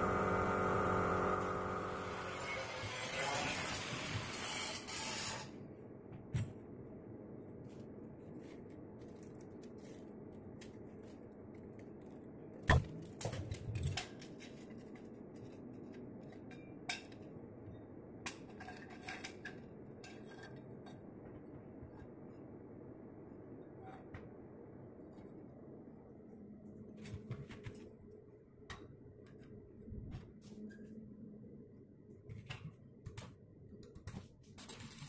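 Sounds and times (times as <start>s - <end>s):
steady low hum: 0.0s - 2.3s.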